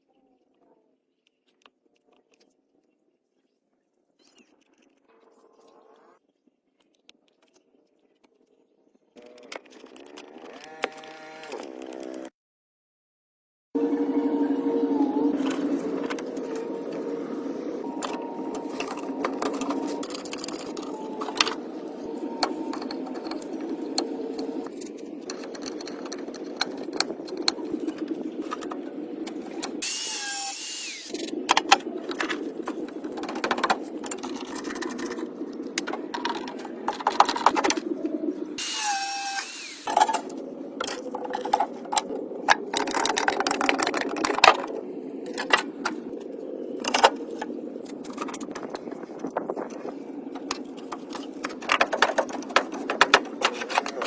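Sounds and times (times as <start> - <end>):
workshop tool humming: 29.5 - 32.0, 38.6 - 40.3
loud hissing burst: 29.8 - 31.2, 38.6 - 40.0
clicks and knocks: 50.4 - 54.0.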